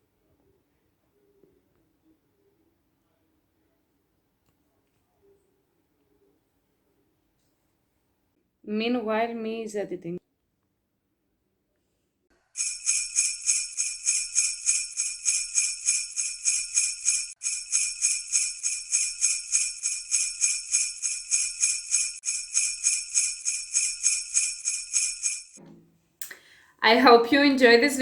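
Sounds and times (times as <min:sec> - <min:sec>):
sleigh bells jingling: 0:12.6 - 0:25.6.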